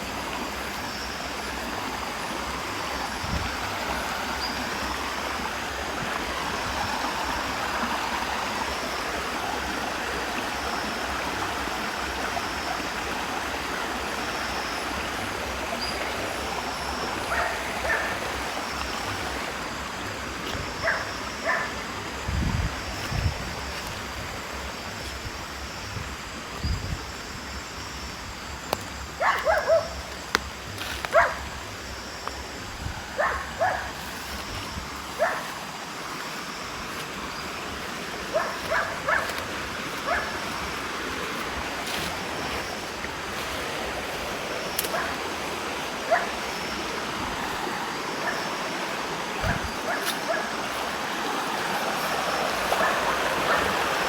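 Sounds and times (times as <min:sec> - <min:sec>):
running water rushing: 0:00.0 - 0:54.0
dog barking: 0:17.3 - 0:18.2, 0:20.8 - 0:21.7, 0:29.2 - 0:30.0, 0:31.1 - 0:31.4, 0:33.2 - 0:34.0, 0:35.2 - 0:35.5, 0:38.3 - 0:39.4, 0:40.0 - 0:40.3, 0:44.9 - 0:45.2, 0:46.0 - 0:46.4, 0:49.4 - 0:50.5, 0:52.8 - 0:53.8.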